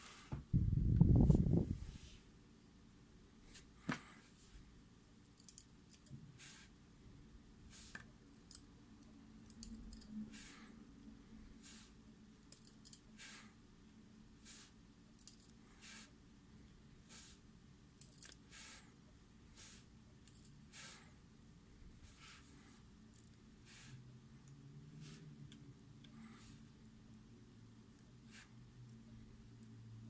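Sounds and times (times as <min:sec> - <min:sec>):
small metal parts clicking: 0:05.2 - 0:06.1, 0:09.4 - 0:10.1, 0:12.4 - 0:13.0, 0:15.2 - 0:15.6, 0:18.0 - 0:18.4.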